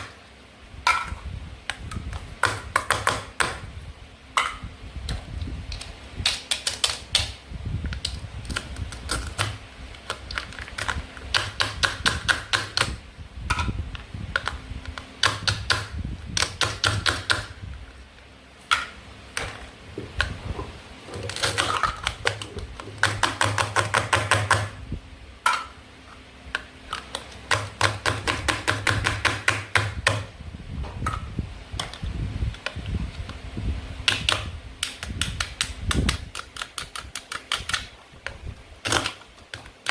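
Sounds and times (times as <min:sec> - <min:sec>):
toy knife cutting plastic food: 0:34.1 - 0:37.9.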